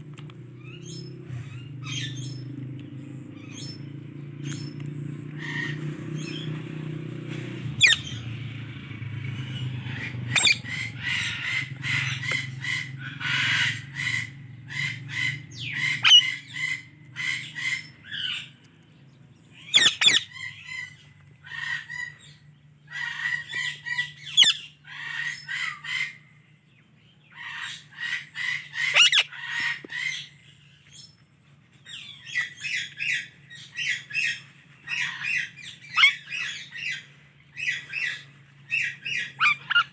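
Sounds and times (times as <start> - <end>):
steady low hum: 0.0 - 22.9
parakeet chirping: 3.3 - 6.7, 7.5 - 8.7, 9.3 - 18.4, 19.6 - 22.4, 23.0 - 26.1, 27.5 - 31.1, 31.9 - 39.9.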